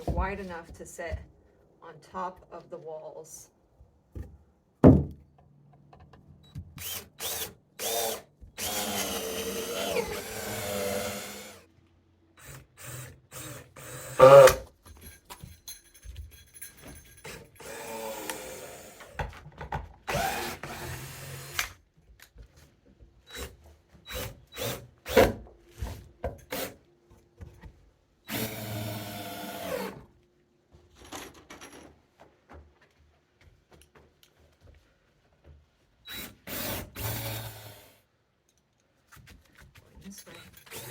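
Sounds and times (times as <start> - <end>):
power drill drilling into wood: 6.8 - 11.6, 20.1 - 21.7, 28.3 - 30.0, 36.1 - 38.0
clicks and knocks of parts handled: 38.4 - 40.8.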